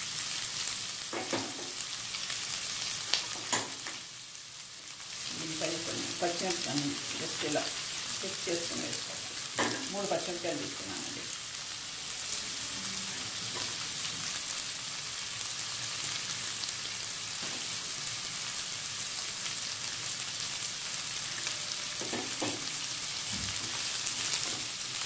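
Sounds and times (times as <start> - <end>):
onions sizzling in hot oil: 0.0 - 25.0.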